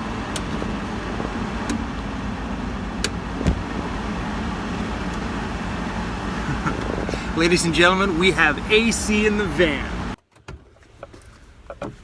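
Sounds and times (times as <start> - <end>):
air conditioner running: 1.7 - 10.2
soft thump: 3.4 - 3.8.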